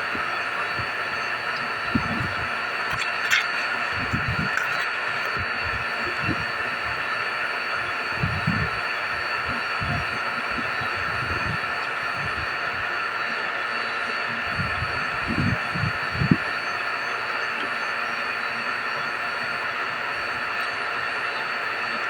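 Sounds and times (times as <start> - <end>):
vacuum pump running: 0.0 - 22.0.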